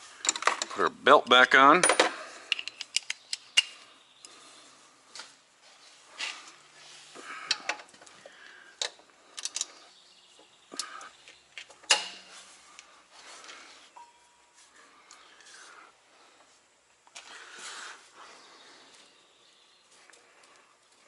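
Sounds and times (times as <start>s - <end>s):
metallic clinks and knocks of tools: 1.8s - 3.4s.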